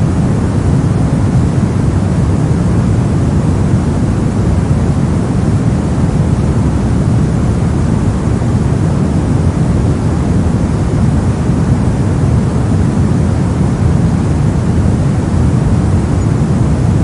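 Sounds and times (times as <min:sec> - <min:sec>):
deep rumbling noise: 0:00.0 - 0:17.0.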